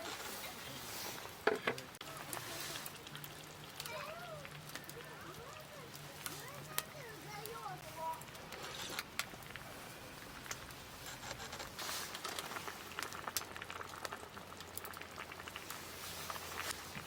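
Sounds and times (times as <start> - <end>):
soup simmering with small pops: 1.1 - 17.0.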